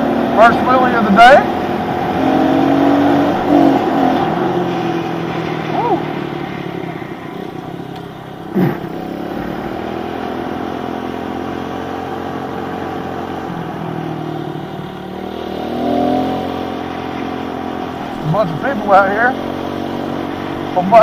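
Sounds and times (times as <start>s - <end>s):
muffled small motorbike engine: 0.0s - 21.0s.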